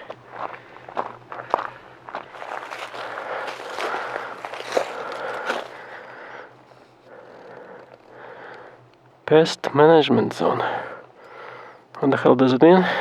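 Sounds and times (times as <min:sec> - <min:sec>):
footsteps on forest trail: 0:00.0 - 0:06.6.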